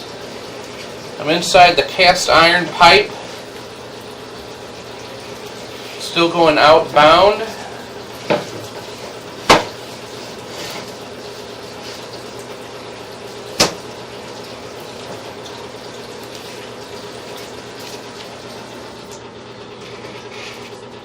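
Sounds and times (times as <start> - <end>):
water running into sink drain: 0.0 - 21.0.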